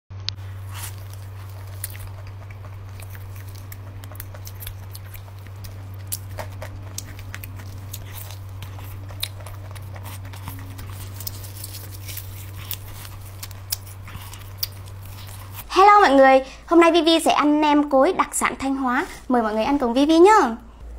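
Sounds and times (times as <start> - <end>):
steady low hum: 0.1 - 20.9
close-miked chewing and biting: 0.3 - 15.7.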